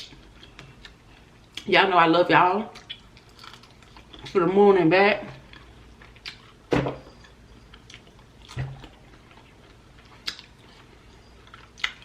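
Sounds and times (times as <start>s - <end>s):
chewing smacks: 2.8s - 4.3s, 5.5s - 12.0s.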